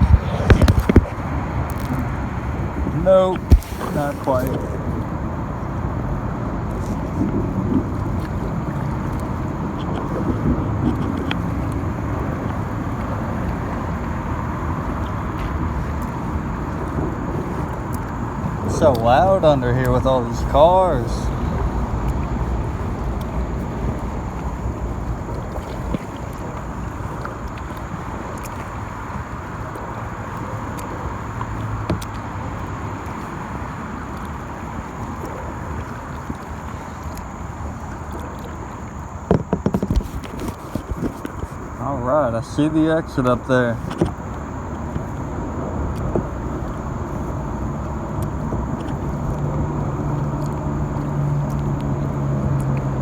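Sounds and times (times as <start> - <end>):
low engine drone: 0.0 - 53.0
traffic rumbling on bridge: 0.0 - 53.0
faint ticks: 21.3 - 41.8.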